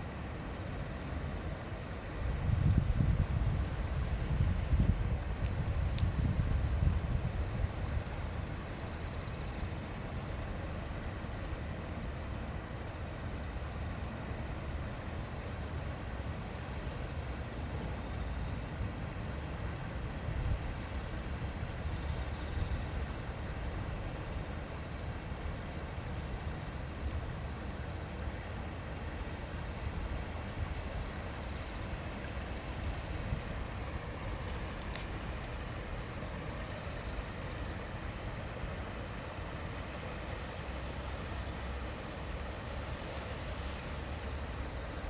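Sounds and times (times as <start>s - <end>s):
wind on microphone: 2.2s - 8.6s
river babbling over stones: 5.2s - 45.0s
faint click: 5.9s - 6.1s, 34.4s - 35.3s.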